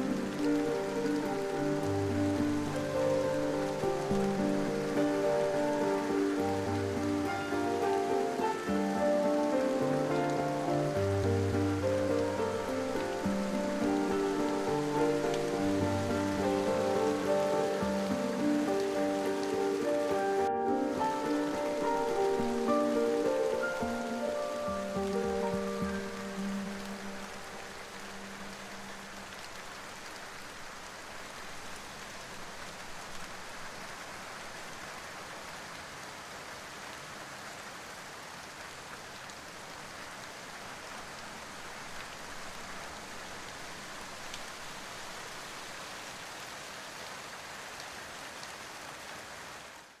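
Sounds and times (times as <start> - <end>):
soft music tone: 0.0 - 29.6
rain falling: 0.0 - 50.0.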